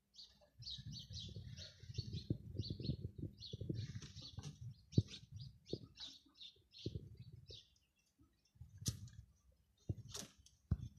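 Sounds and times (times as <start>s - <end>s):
birds chirping: 0.0s - 10.9s
sharp knocks and low bumps: 9.8s - 10.9s.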